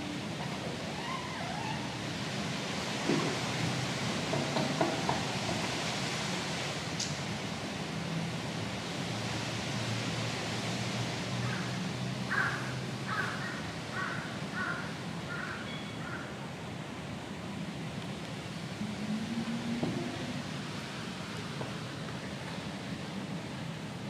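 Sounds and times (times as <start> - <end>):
hiss and low hum: 16.4 - 24.0.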